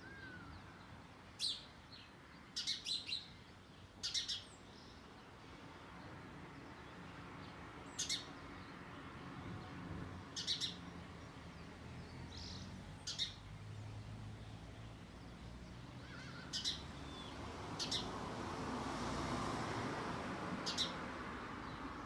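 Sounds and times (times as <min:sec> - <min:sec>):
bird chirping: 0:01.4 - 0:03.4, 0:04.0 - 0:05.0, 0:10.4 - 0:10.9, 0:12.0 - 0:13.5, 0:16.0 - 0:18.1, 0:20.6 - 0:21.0.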